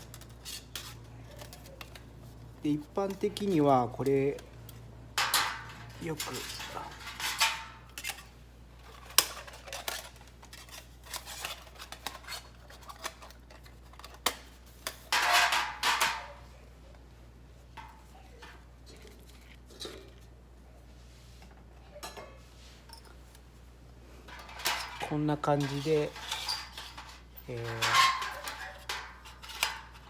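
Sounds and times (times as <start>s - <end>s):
metal panels clinking and clattering: 3.0s - 8.3s, 24.3s - 30.0s.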